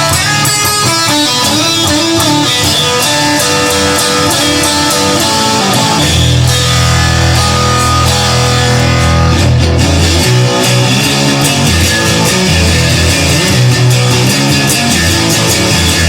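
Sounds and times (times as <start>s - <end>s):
heavy low bass: 3.9s - 16.0s.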